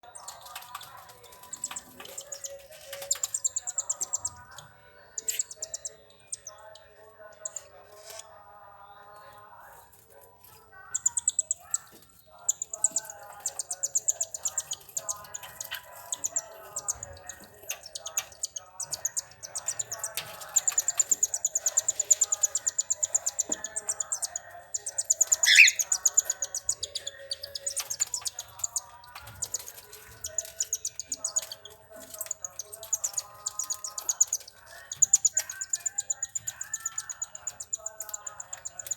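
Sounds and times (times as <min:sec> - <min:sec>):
cockatiels chirping: 0:00.2 - 0:06.8, 0:10.8 - 0:38.9
lower bird calls: 0:25.1 - 0:26.2.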